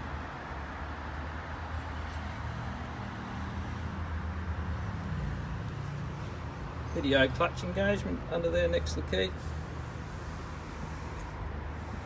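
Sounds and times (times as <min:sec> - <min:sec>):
tractor diesel engine idling: 0:06.2 - 0:12.0.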